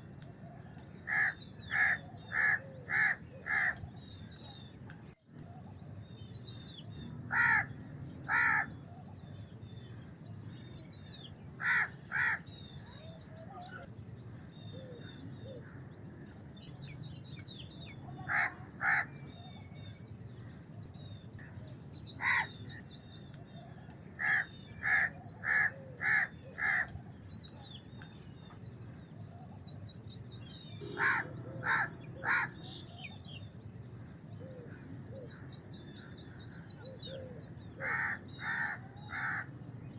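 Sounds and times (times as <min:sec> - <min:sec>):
small birds twittering: 0:00.0 - 0:39.9
crows cawing: 0:01.0 - 0:03.8, 0:07.3 - 0:08.8, 0:11.6 - 0:12.5, 0:18.2 - 0:19.2, 0:22.1 - 0:22.8, 0:24.2 - 0:27.0, 0:30.8 - 0:32.9, 0:37.8 - 0:39.5.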